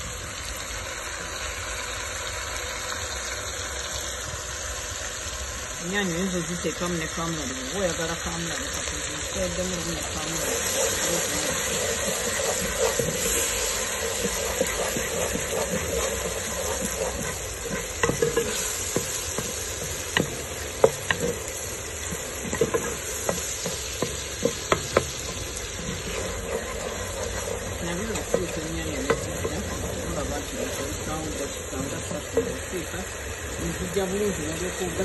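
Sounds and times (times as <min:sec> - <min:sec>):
vegetables sizzling in hot oil: 0:00.0 - 0:35.0
wooden spoon scraping a pot: 0:08.8 - 0:34.0.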